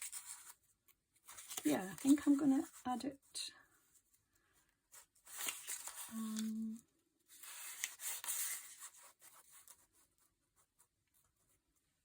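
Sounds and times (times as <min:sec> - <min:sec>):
tissue paper rustling and tearing: 0:01.2 - 0:02.8, 0:05.0 - 0:06.6, 0:07.3 - 0:09.9.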